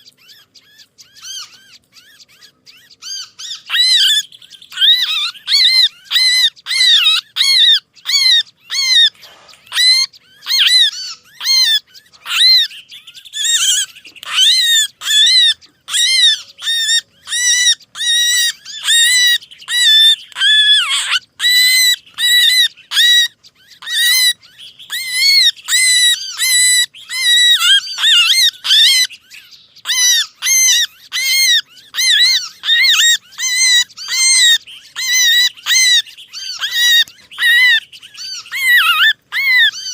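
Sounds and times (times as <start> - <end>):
songbird distress calls: 0.0 - 39.9.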